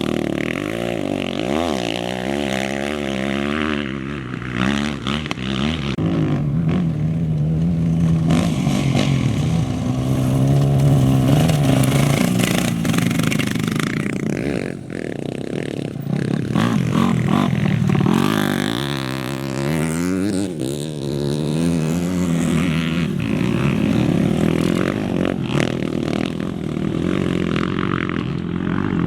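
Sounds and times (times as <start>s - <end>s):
race vehicle engine revving: 0.0s - 14.8s.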